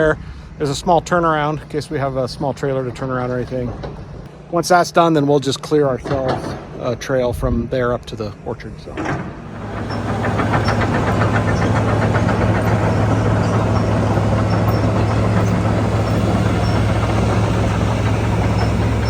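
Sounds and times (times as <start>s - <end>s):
heavy machine engine running: 9.0s - 19.0s.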